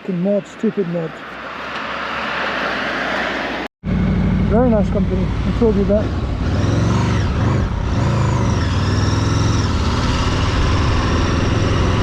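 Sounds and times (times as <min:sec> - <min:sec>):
vehicle engine running: 0:03.8 - 0:12.0.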